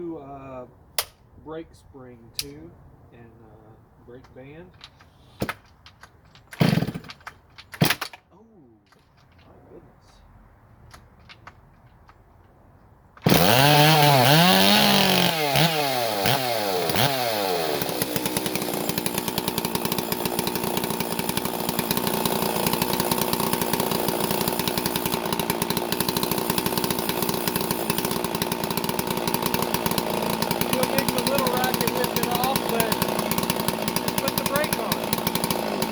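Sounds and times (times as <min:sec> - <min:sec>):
chainsaw starting and revving: 0:06.6 - 0:07.2, 0:13.2 - 0:35.9.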